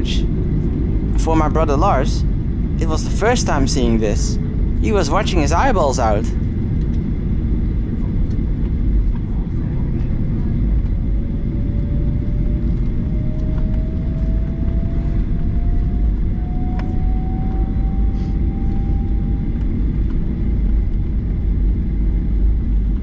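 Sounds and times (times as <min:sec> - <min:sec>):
aircraft engines idling: 0:00.0 - 0:07.3.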